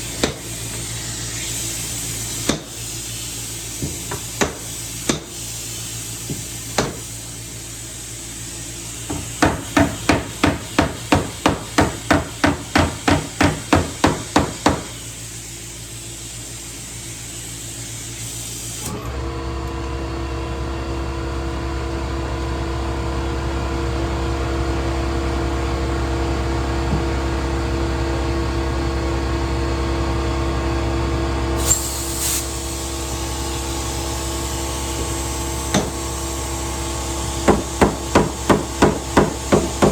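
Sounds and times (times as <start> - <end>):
hammer on sheet metal: 9.1 - 14.9, 37.5 - 39.9.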